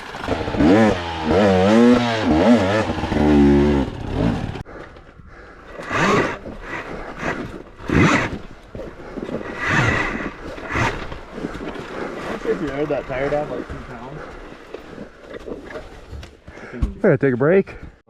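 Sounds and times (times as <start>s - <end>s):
dirt bike engine revving: 0.0s - 4.6s, 5.8s - 14.3s.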